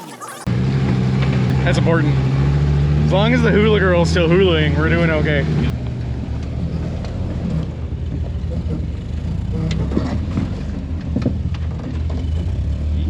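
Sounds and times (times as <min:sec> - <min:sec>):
truck engine running at low revs: 0:00.0 - 0:13.0
truck knocks and creaks: 0:05.7 - 0:13.0.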